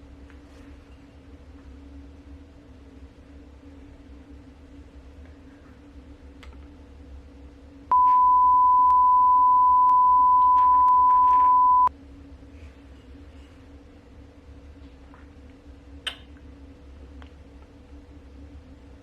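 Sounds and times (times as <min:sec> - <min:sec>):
faint background hum: 0:00.0 - 0:19.0
censor beep tone: 0:07.9 - 0:11.9.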